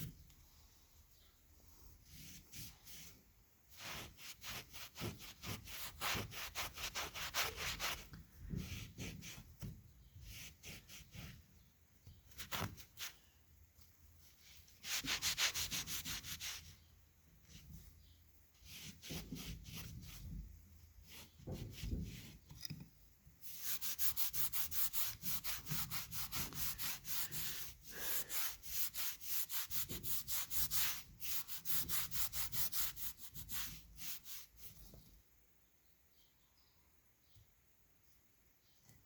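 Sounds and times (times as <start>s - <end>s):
brush scrubbing metal: 23.4s - 34.7s.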